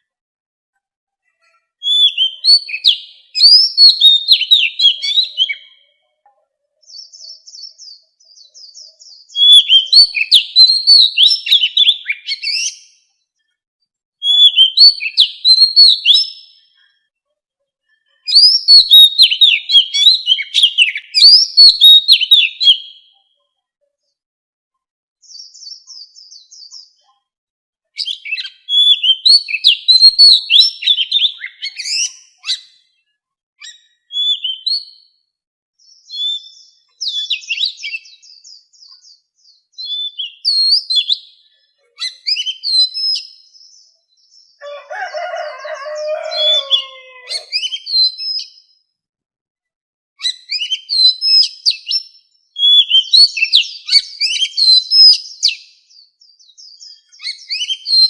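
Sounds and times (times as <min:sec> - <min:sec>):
bird singing whistled notes: 0:01.8 - 0:05.9, 0:06.8 - 0:13.0, 0:14.2 - 0:16.6, 0:18.3 - 0:23.2, 0:25.2 - 0:27.0, 0:28.0 - 0:32.9, 0:33.6 - 0:35.2, 0:35.8 - 0:41.4, 0:42.0 - 0:44.6, 0:46.4 - 0:48.8, 0:50.2 - 0:58.0.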